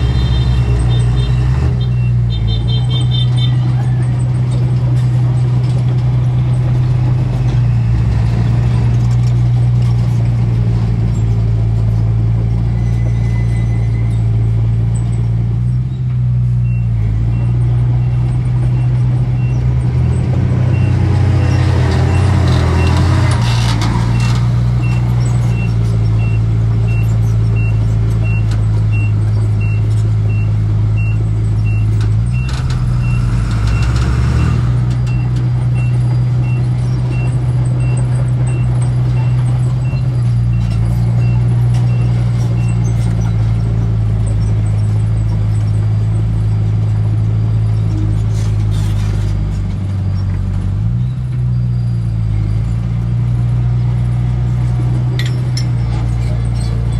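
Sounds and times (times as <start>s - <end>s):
diesel construction machinery running: 0.0s - 56.9s
reversing alarm beeping: 27.6s - 40.6s.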